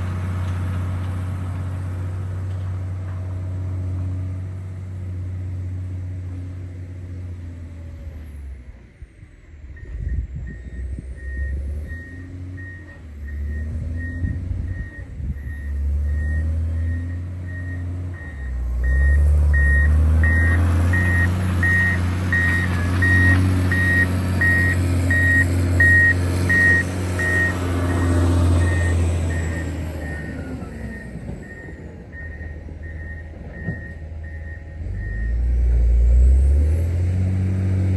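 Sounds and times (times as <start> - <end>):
diesel engine running: 0.0 - 37.9
reversing alarm beeping: 9.2 - 35.5.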